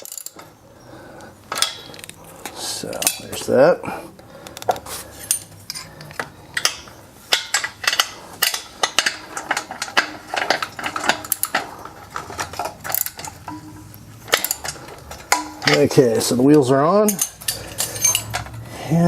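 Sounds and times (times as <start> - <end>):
metallic clinks and rattles: 0.0 - 0.6, 5.2 - 16.4, 17.0 - 18.7.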